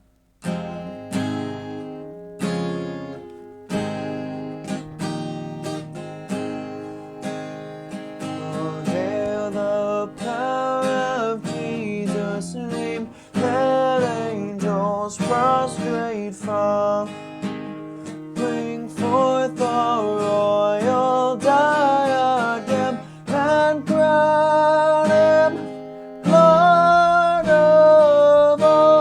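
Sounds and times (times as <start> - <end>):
acoustic guitar strumming chords: 0.0 - 29.0
person singing solo: 18.4 - 29.0.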